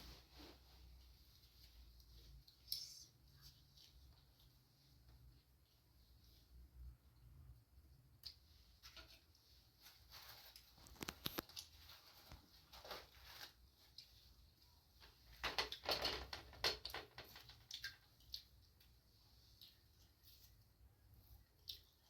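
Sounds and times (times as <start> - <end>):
small objects clicking and rustling: 10.5 - 11.8, 15.3 - 18.0.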